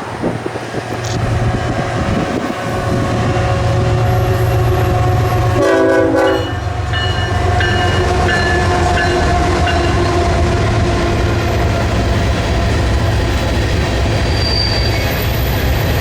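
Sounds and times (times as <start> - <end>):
freight train rumbling past: 0.0 - 16.0
locomotive air horn blast: 1.1 - 8.9.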